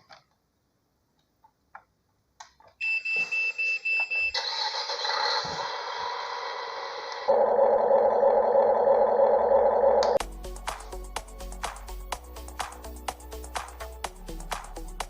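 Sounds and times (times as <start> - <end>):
loud music: 10.2 - 15.0.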